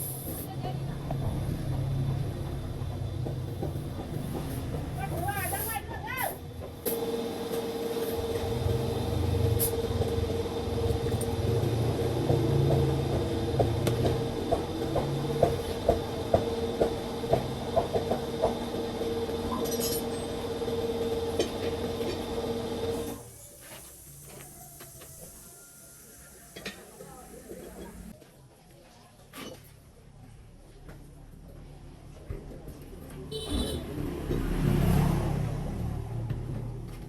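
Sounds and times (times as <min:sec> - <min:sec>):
motor humming: 0:06.9 - 0:23.3.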